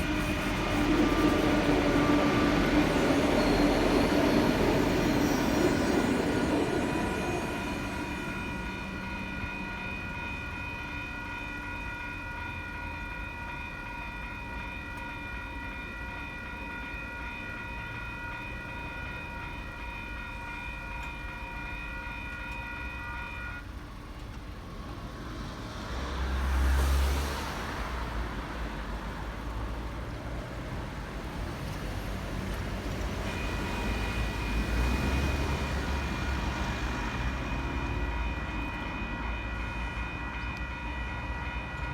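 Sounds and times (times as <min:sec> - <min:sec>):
level crossing bells ringing: 0:00.0 - 0:23.8, 0:32.7 - 0:41.9
train passing with deep rumble: 0:00.0 - 0:41.9.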